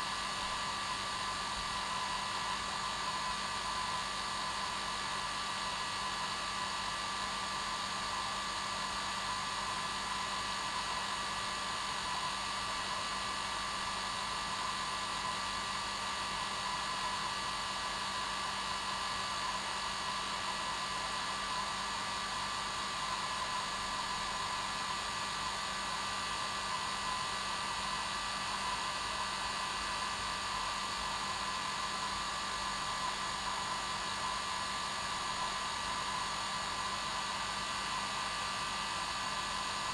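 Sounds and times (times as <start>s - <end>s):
hair dryer running: 16.6s - 39.9s.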